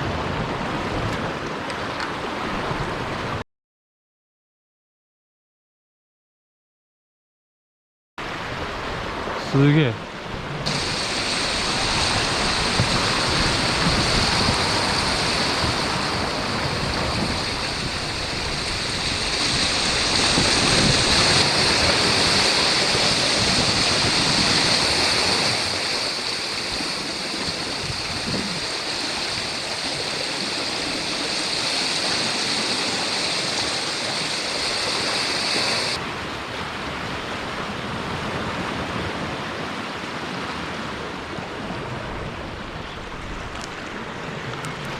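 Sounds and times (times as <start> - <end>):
wind: 0.0 - 3.4, 8.2 - 44.9
waves washing against rocky shore: 8.4 - 44.9
high hiss: 10.7 - 36.0.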